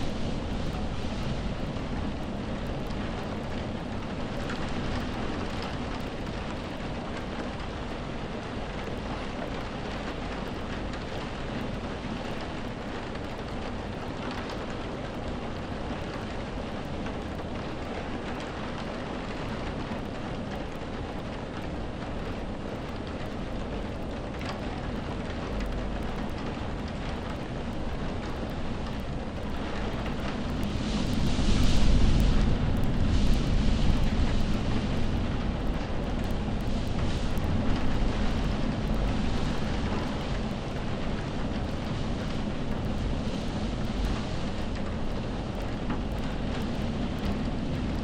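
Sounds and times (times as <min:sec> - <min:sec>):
low rumble: 0:00.0 - 0:06.9, 0:25.3 - 0:48.0
steady rain: 0:00.0 - 0:48.0.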